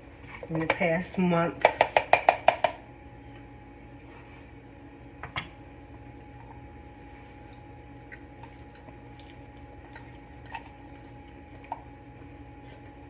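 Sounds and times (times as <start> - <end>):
steady background hum: 0.0 - 13.0
person chewing: 7.3 - 13.0.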